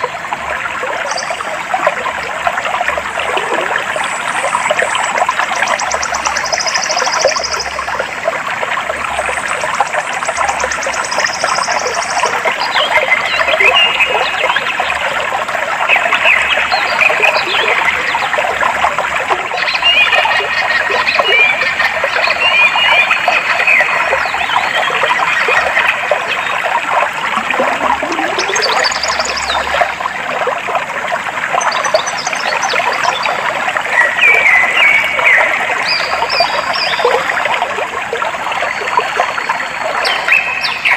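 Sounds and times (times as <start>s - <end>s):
flowing water rushing: 0.0s - 40.9s
birds chirping and whistling: 27.9s - 29.7s.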